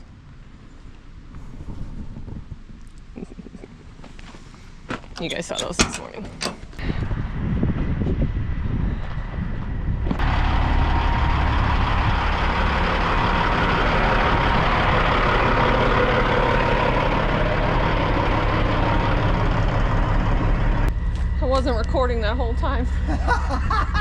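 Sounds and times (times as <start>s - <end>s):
loud steady rushing noise: 7.0s - 23.2s
truck engine idling: 10.0s - 24.0s.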